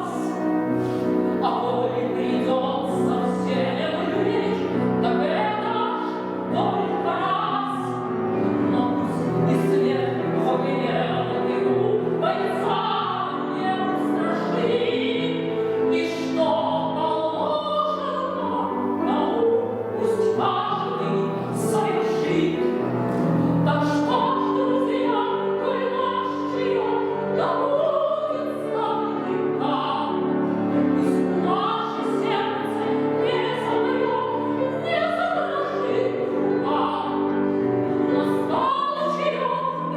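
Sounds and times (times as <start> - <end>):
grand piano accompaniment: 0.0 - 39.9
woman singing classically: 1.4 - 8.1, 8.7 - 30.2, 38.1 - 39.9.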